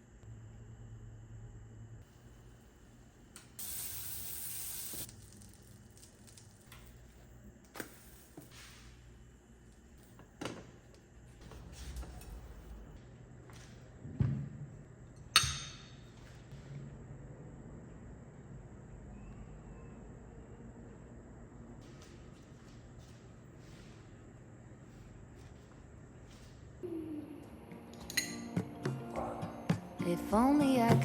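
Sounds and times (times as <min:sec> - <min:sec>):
spray hiss: 0:03.6 - 0:05.1.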